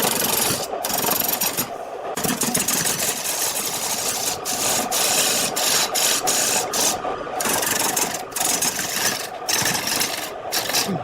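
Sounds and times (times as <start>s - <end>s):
wood lathe cutting wood: 2.9s - 10.9s.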